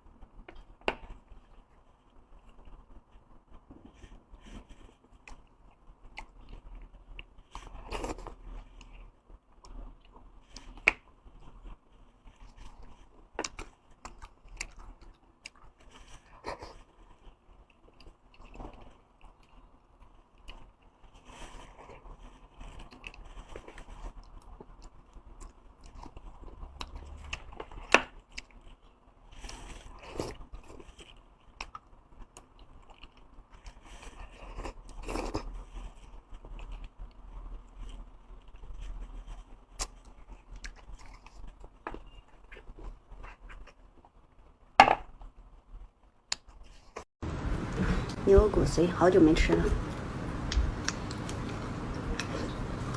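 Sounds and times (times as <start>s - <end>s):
chewing and biting: 12.3s - 44.2s.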